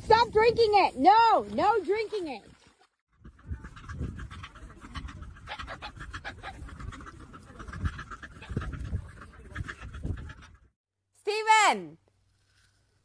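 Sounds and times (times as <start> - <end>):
dog panting: 3.1 - 10.7.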